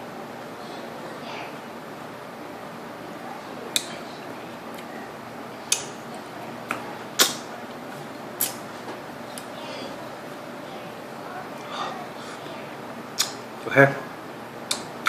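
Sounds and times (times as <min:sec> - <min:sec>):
mouth clicks and lip smacks: 0:05.7 - 0:07.5, 0:08.4 - 0:08.6, 0:13.2 - 0:13.4.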